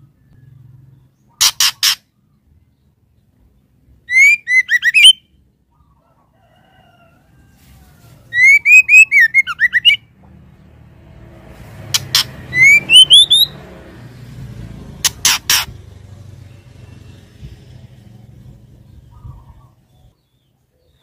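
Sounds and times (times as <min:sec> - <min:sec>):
bird whistled calls: 0:01.3 - 0:02.1, 0:04.0 - 0:05.4, 0:08.3 - 0:10.1, 0:12.0 - 0:13.6
sharp clicks: 0:12.0 - 0:12.3.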